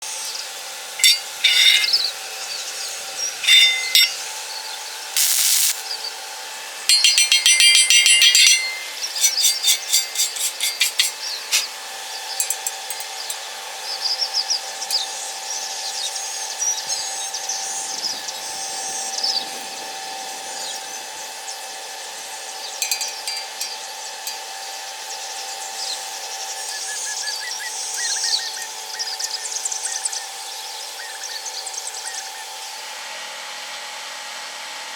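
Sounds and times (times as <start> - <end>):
hissing crackle bursts: 5.1 - 5.8.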